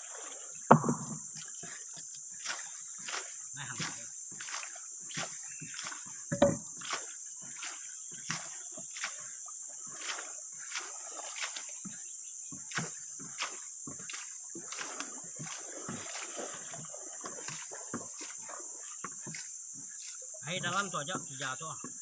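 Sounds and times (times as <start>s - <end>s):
high insect drone: 0.0s - 22.0s
loud thump: 0.7s - 1.2s, 6.3s - 6.6s
footsteps walking: 0.7s - 9.2s, 12.5s - 20.2s.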